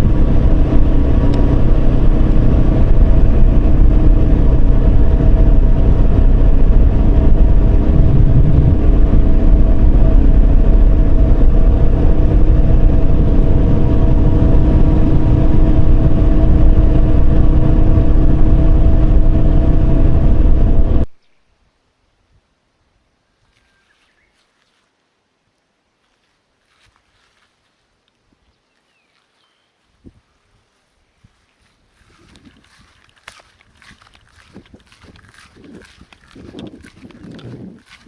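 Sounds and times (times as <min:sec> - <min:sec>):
motorcycle engine running: 0:00.0 - 0:21.1, 0:32.1 - 0:38.0.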